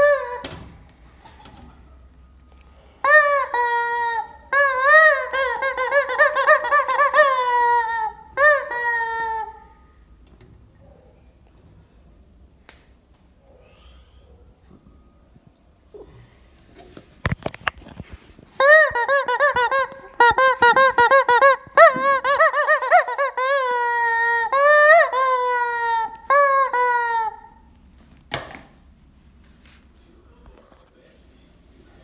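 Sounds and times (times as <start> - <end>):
rubber chicken toy squealing: 0.0 - 0.5, 3.0 - 9.9, 18.6 - 27.7.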